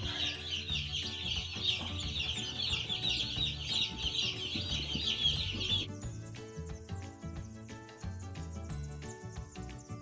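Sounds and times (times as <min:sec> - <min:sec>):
chicks peeping: 0:00.0 - 0:06.0.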